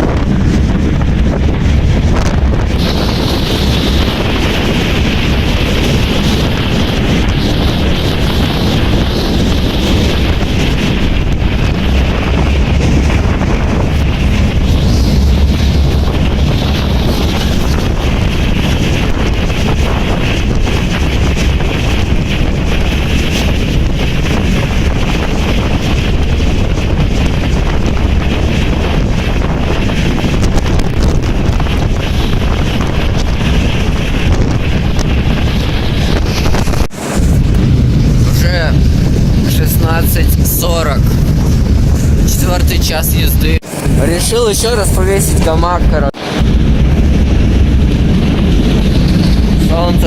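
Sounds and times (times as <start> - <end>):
freight train rumble: 0.0 - 50.0
wind buffeting microphone: 0.0 - 50.0.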